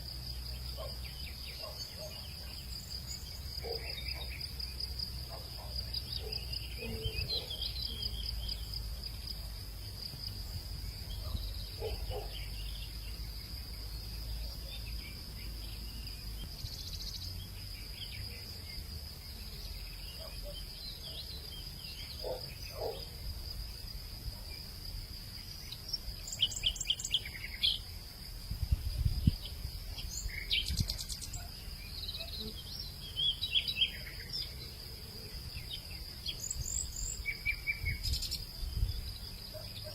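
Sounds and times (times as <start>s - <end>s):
insects droning: 0.0s - 39.9s
birds chirping and calling: 5.3s - 8.6s.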